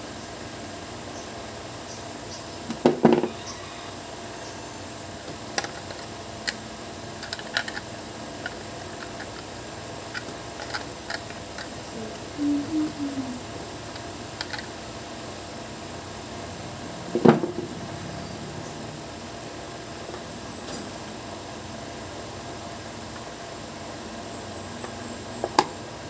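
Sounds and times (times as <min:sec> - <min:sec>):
loud knocks on workbench: 0:02.7 - 0:03.3, 0:17.2 - 0:17.7
low tone: 0:11.9 - 0:13.5.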